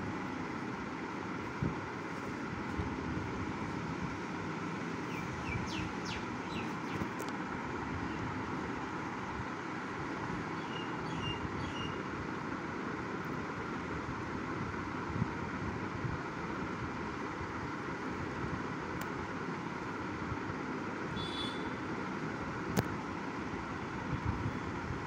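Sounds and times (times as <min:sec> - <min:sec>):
steady background noise: 0:00.0 - 0:25.0
small birds chirping: 0:04.9 - 0:07.3, 0:10.4 - 0:12.1.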